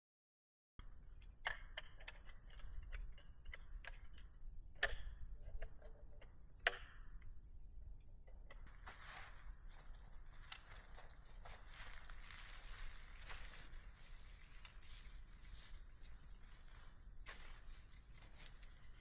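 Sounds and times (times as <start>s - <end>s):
camping gear clicks and knocks: 8.3s - 19.0s.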